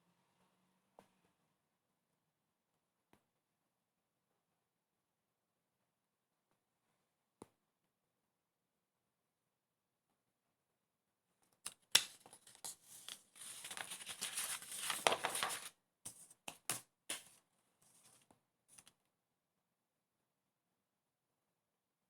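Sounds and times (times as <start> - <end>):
scratchy rustling and scraping: 12.3 - 16.4, 17.1 - 18.9.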